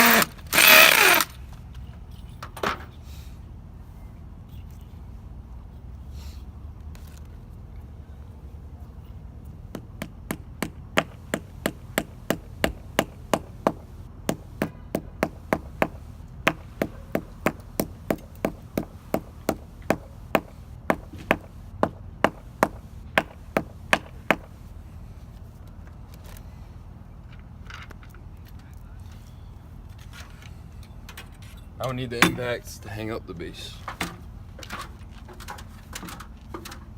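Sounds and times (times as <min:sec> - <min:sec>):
hammer tapping: 0:09.7 - 0:24.5, 0:32.2 - 0:32.5.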